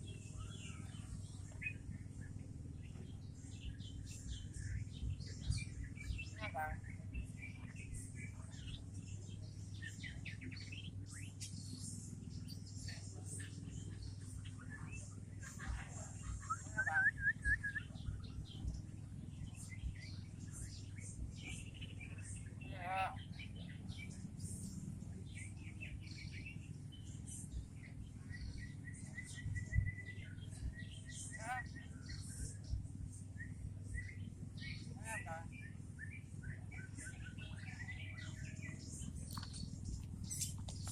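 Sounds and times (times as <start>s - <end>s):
birds chirping and whistling: 0.0s - 40.9s
steady low hum: 0.0s - 40.9s.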